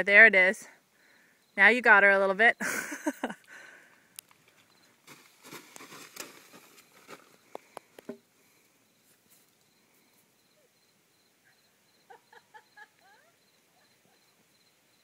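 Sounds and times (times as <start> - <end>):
insect chirping trill: 0.9 - 1.8, 4.6 - 5.0, 8.6 - 15.0
soft rustles: 4.3 - 8.1, 9.0 - 10.3.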